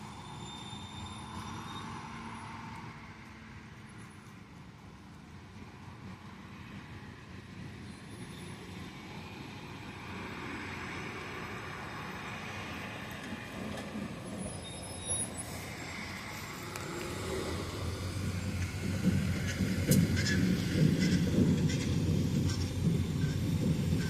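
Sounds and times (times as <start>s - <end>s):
heavy diesel machinery running: 7.4s - 24.0s.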